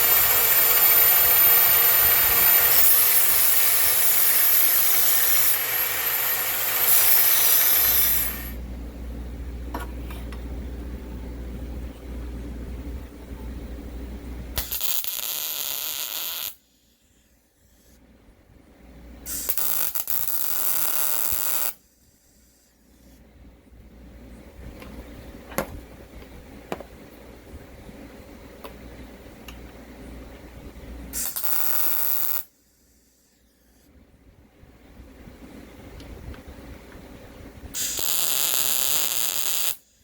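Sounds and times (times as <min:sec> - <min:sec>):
metalworking tool bursts: 0:00.0 - 0:08.6, 0:37.8 - 0:39.8.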